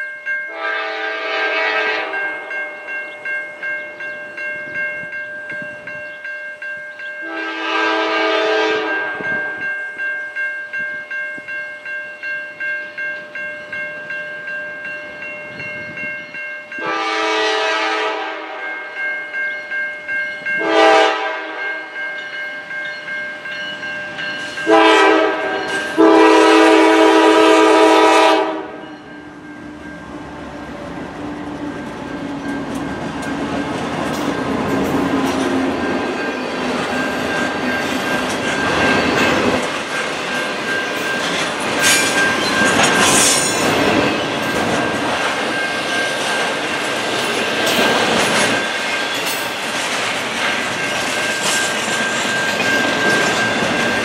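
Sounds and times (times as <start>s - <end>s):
locomotive air horn blasts: 0.5s - 2.6s, 7.2s - 9.5s, 16.8s - 18.7s, 20.6s - 21.8s, 24.6s - 28.9s
freight train rumble: 0.5s - 54.0s
wheels clacking over rail joints: 30.5s - 54.0s.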